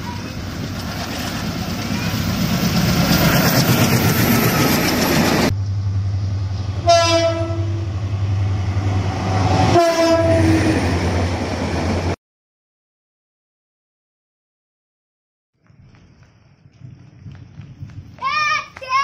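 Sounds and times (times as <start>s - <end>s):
diesel locomotive engine drone: 0.0s - 12.2s
train passing at speed: 0.0s - 12.2s
train horn blasts: 6.8s - 8.0s, 9.6s - 10.7s.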